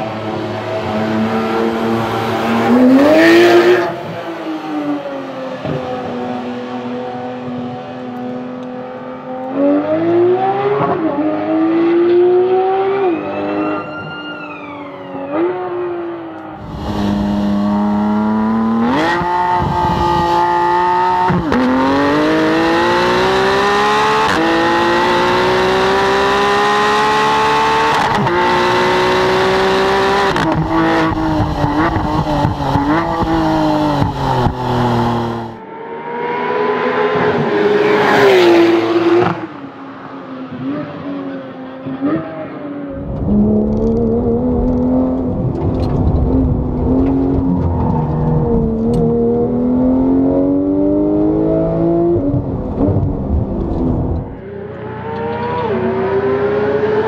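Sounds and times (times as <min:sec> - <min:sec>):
sports car engine revving: 0:16.6 - 0:35.6.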